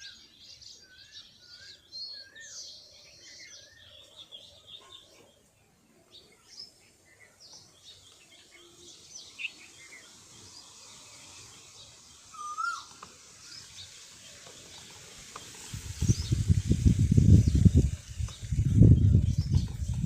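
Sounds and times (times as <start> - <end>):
birds chirping: 0.0 - 20.0
loud gliding bird call: 12.3 - 12.9.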